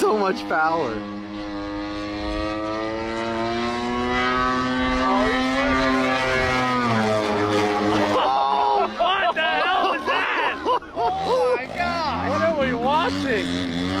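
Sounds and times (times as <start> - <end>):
model airplane engine and propeller: 0.0 - 9.8.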